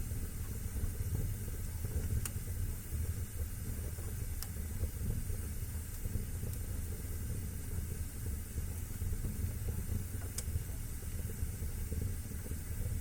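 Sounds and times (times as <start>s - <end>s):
fire crackling pops: 0.0s - 13.0s
fire flames rumbling and hissing: 0.0s - 13.0s.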